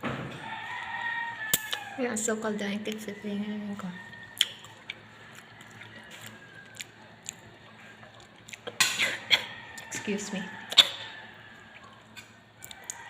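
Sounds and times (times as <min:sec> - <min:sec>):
quiet chewing: 0:02.8 - 0:13.0.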